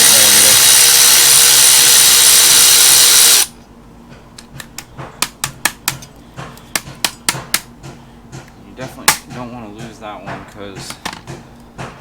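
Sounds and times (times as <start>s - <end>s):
power ratchet running: 0.0s - 3.5s.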